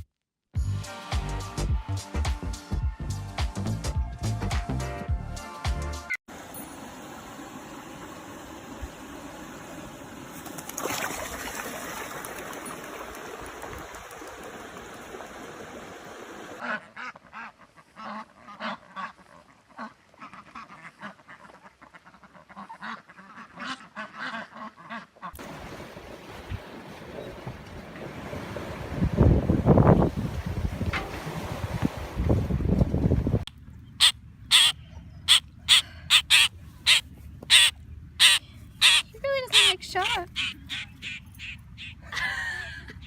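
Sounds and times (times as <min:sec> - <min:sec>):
short bird calls: 0:33.9 - 0:42.0.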